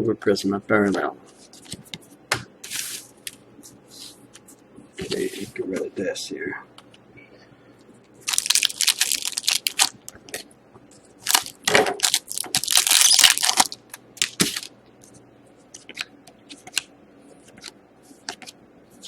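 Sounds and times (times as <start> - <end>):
plastic wrapper crumpling: 8.2 - 10.1, 11.2 - 14.7.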